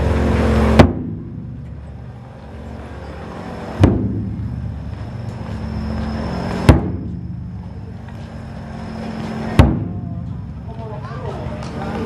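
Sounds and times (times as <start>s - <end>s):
low engine-like hum: 0.0s - 12.0s
taiko drum beats: 0.7s - 2.0s, 3.8s - 5.4s, 6.6s - 7.6s, 9.5s - 10.7s.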